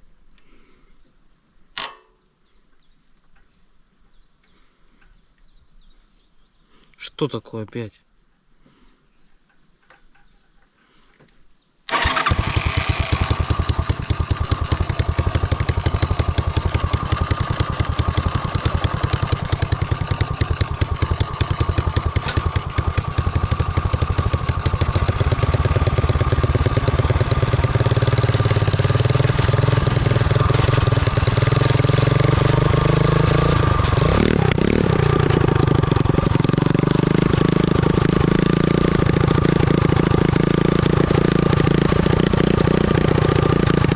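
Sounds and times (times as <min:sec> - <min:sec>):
go-kart engine running: 0:11.9 - 0:43.9.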